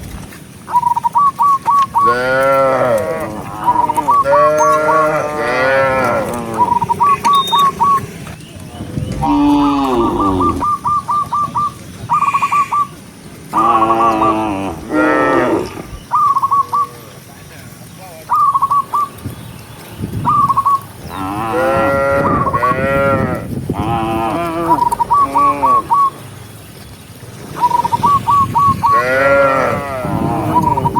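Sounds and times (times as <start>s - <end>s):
cattle mooing: 2.0s - 8.4s, 9.1s - 10.6s, 13.5s - 16.0s, 21.1s - 26.0s, 28.9s - 30.9s.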